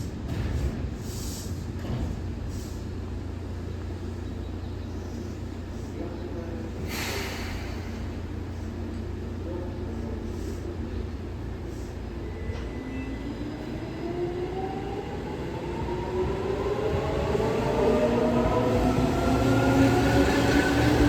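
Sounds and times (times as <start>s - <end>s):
electric train rumbling: 0.0s - 21.0s.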